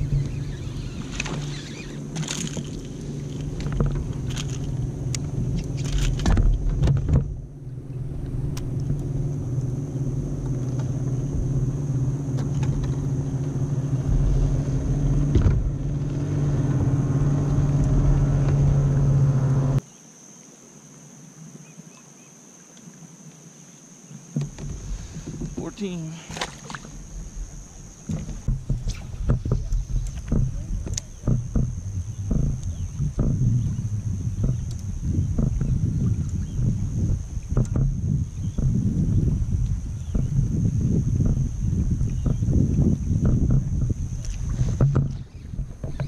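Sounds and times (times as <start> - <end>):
motor humming: 0.0 - 19.8.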